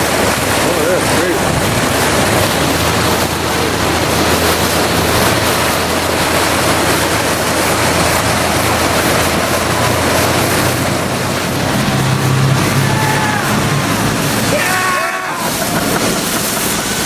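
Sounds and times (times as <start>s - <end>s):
heavy rain and rushing water: 0.0s - 17.0s.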